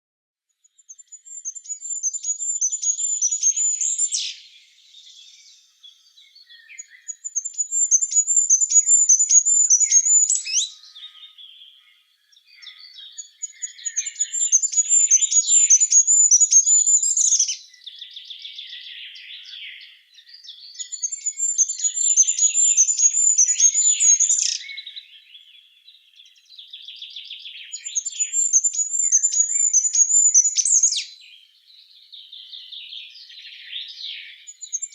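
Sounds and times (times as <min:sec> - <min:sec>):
songbird singing: 0:00.5 - 0:34.9
faint bird twittering: 0:00.7 - 0:34.9.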